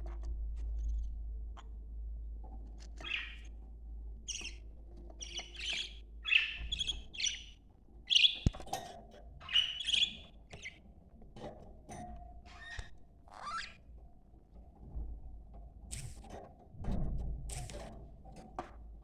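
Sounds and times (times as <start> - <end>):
budgerigars chattering: 3.0 - 3.5, 5.2 - 8.5, 9.4 - 10.3
sharp click: 15.9 - 16.2.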